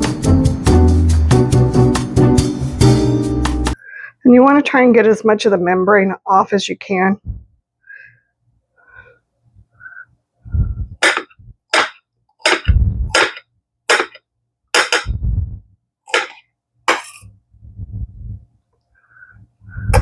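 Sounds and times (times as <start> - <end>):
knife chopping on cutting board: 11.0 - 14.2, 16.1 - 17.2.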